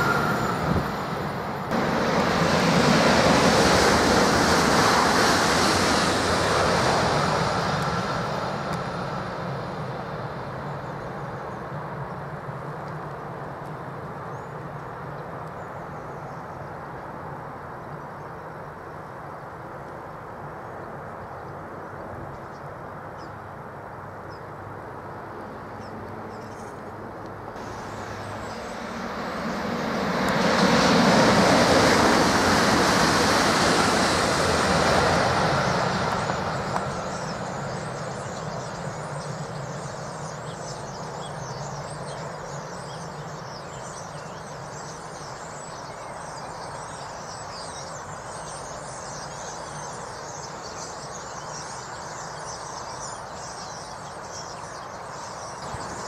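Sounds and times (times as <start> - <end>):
train rushing past: 0.0 - 11.2, 27.6 - 42.8.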